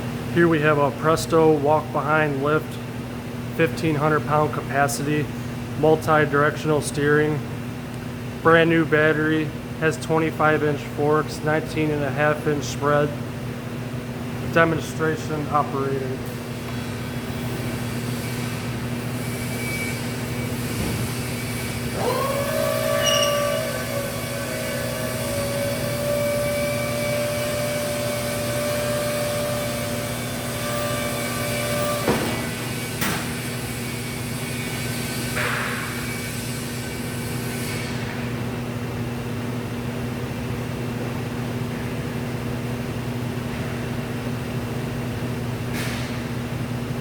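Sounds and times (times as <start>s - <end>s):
hydraulic pump motor whining: 19.1s - 35.6s.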